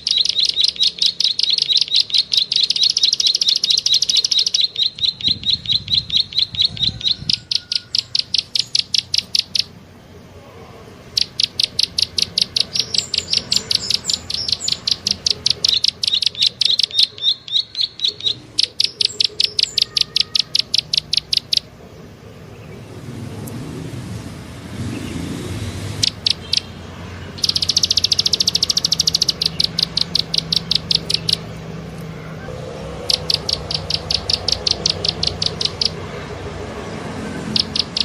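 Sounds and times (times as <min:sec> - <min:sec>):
bird clicking call: 0:00.0 - 0:09.7, 0:11.1 - 0:21.7, 0:26.0 - 0:26.8, 0:27.4 - 0:36.1, 0:37.4 - 0:38.0.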